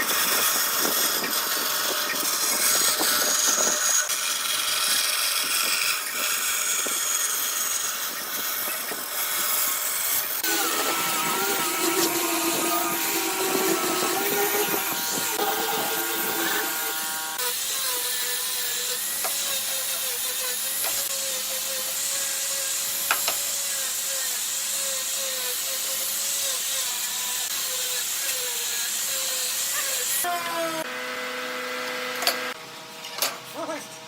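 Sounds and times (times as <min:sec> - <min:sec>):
power tool whining on wood: 0:00.0 - 0:33.7.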